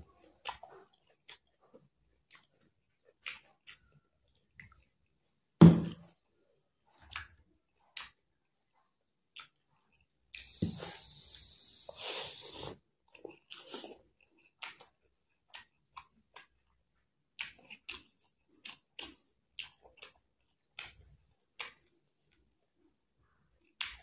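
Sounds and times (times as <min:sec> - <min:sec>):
person chewing and lip-smacking: 0:00.2 - 0:04.9, 0:09.3 - 0:21.9, 0:23.2 - 0:24.0.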